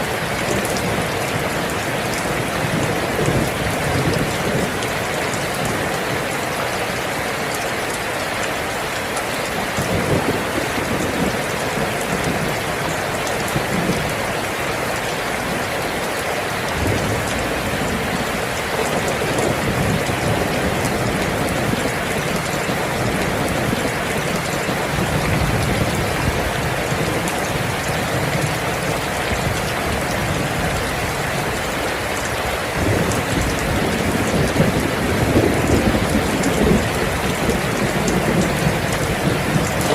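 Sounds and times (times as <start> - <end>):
steady rain: 0.0 - 39.9
thunder rumbling: 16.7 - 30.8, 32.8 - 39.9.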